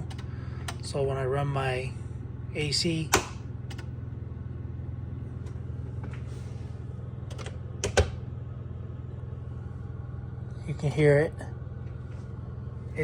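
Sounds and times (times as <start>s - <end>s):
low machine hum: 0.0s - 13.0s
sharp clicks: 3.1s - 3.9s.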